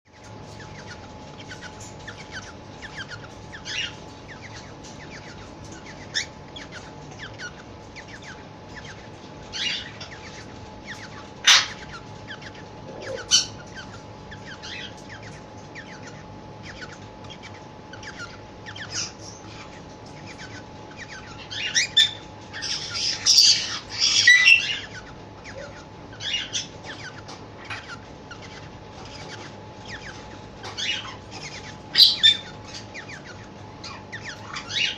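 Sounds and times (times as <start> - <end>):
cockatiel chirping: 0.5 - 34.9
cockatiel squawky calls: 6.1 - 15.0, 15.8 - 34.9.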